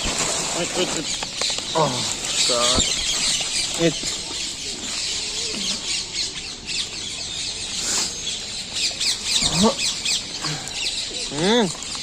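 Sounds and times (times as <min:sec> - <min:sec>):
many birds chirping: 0:00.0 - 0:12.0.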